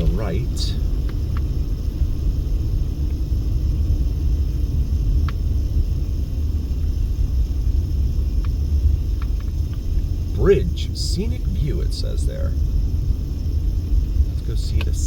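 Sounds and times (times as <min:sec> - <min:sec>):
car road and engine rumble: 0:00.0 - 0:15.0
faint clicks: 0:14.7 - 0:15.0.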